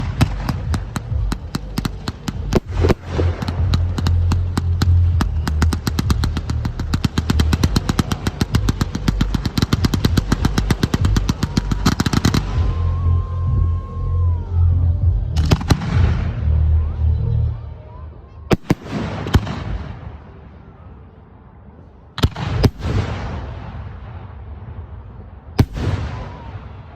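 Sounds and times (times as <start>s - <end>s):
fireworks banging: 0.0s - 14.0s
deep rumble: 0.0s - 18.1s.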